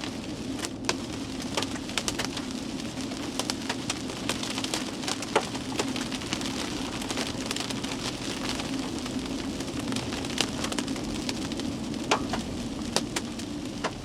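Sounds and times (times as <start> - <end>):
rain pelting a car: 0.0 - 14.0
hailstones knocking on a car: 3.4 - 8.9, 9.7 - 14.0.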